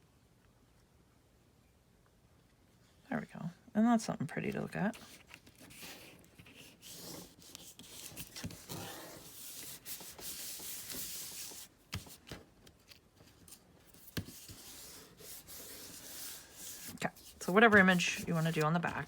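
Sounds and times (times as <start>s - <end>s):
paper rubbed by hand: 5.0s - 11.7s, 13.9s - 19.0s.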